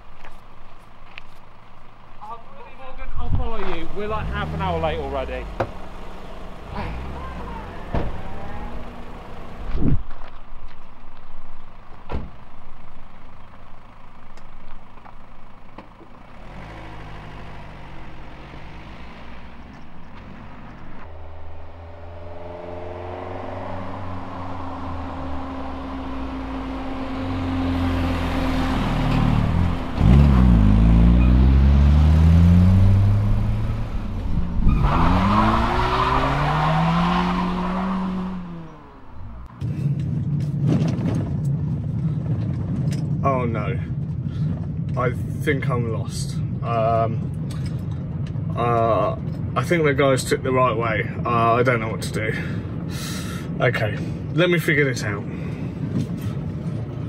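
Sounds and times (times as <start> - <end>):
car engines: 0.0 - 57.0
car passing close: 3.4 - 10.0, 16.1 - 39.7
car engine accelerating away: 3.6 - 9.9, 16.1 - 39.6.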